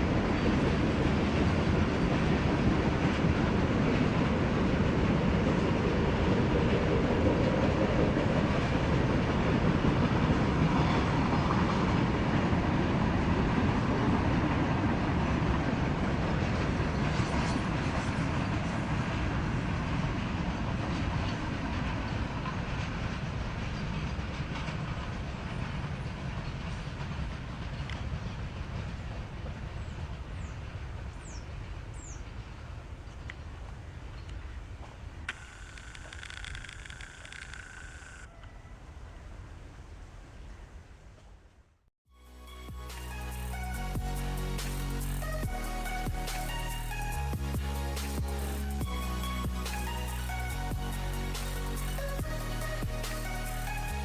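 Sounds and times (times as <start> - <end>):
train wheels clattering on rails: 0.0 - 37.8
train rumble: 0.0 - 41.6, 42.2 - 54.0.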